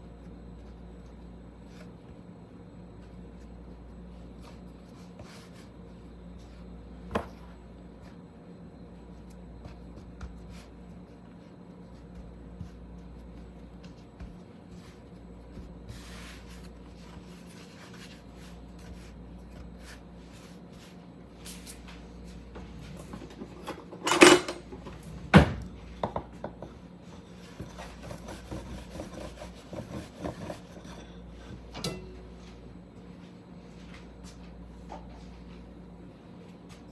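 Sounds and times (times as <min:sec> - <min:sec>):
rolling pin rubbing on dough: 0:09.0 - 0:21.2, 0:27.1 - 0:31.6.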